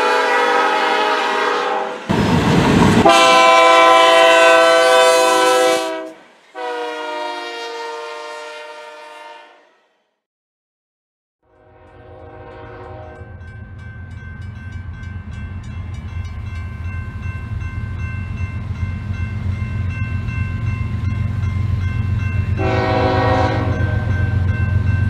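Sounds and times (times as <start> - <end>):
locomotive air horn: 0.0 - 2.1, 3.0 - 10.0, 11.5 - 13.3, 22.6 - 24.4
crossing bell ringing: 11.6 - 25.0.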